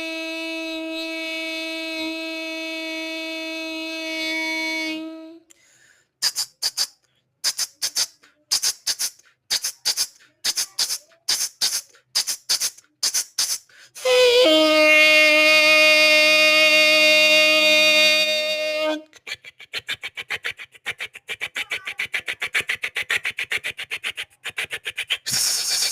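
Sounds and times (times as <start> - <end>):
sharp hissing mouth bursts: 6.2 - 14.0, 19.3 - 25.9
reedy held mouth note: 6.2 - 19.1.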